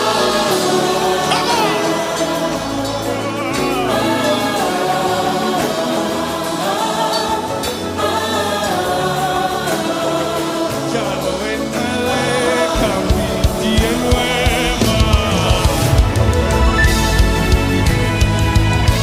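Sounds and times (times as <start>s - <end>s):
choir singing gospel: 0.0s - 19.0s
instrumental backing: 1.0s - 4.2s.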